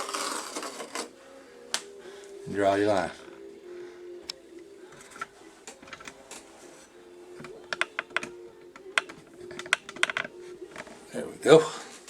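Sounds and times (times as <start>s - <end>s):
faint hum: 1.1s - 12.0s
pencil and straightedge tapping: 4.9s - 6.4s, 7.3s - 11.0s.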